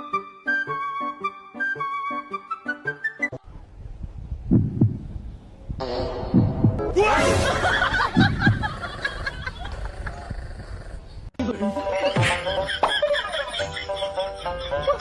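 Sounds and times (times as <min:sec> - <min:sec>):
heartbeat-like double thumps: 0:03.8 - 0:07.0, 0:07.9 - 0:09.3.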